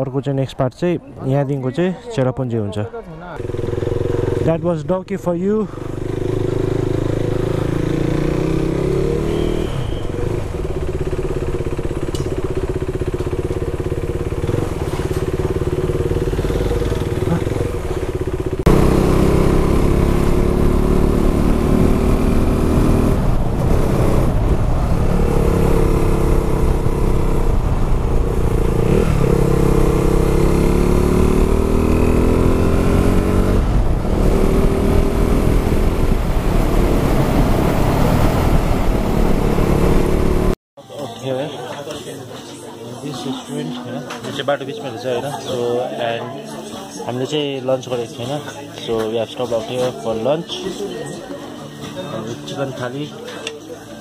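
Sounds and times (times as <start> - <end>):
motorcycle engine running: 3.4 - 40.6.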